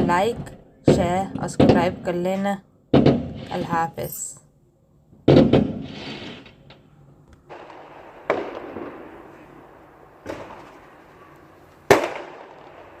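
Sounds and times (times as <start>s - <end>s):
fireworks exploding: 5.3s - 6.7s, 7.4s - 13.0s.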